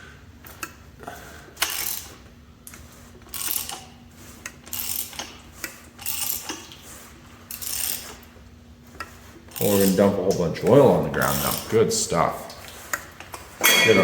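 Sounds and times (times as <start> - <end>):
ratchet wrench clicking: 1.6 - 2.1, 3.3 - 3.9, 4.7 - 5.4, 6.0 - 6.6, 7.5 - 8.1.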